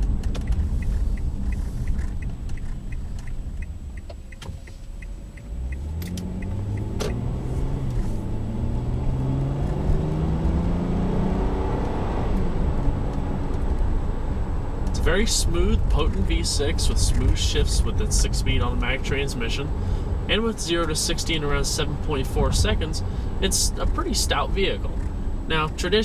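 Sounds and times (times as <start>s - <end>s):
rapid even ticking: 0.0s - 7.3s
car engine accelerating: 0.0s - 26.0s.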